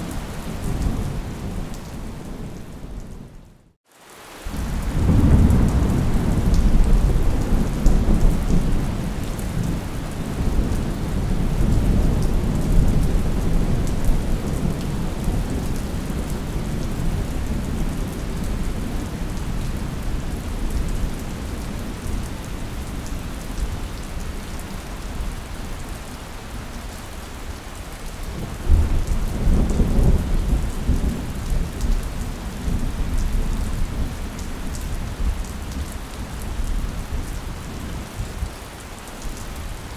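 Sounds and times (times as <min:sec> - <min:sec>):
heavy rain: 0:00.0 - 0:39.9
rolling thunder: 0:04.6 - 0:19.1.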